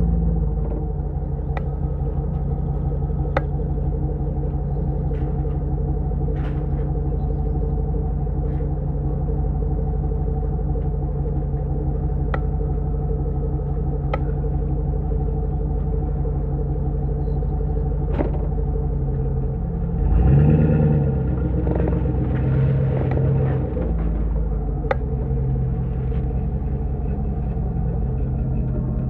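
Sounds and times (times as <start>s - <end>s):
engine droning at steady revs: 0.0s - 29.0s.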